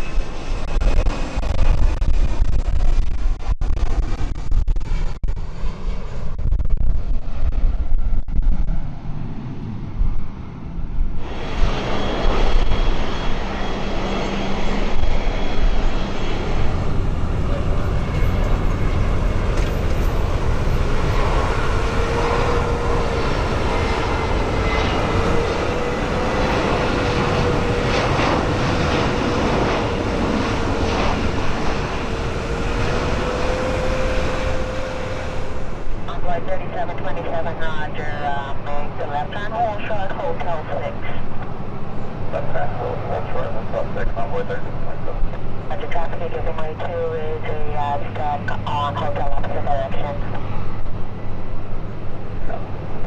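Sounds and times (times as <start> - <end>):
aircraft engines roaring: 0.0 - 53.0
steady engine whine: 0.0 - 53.0.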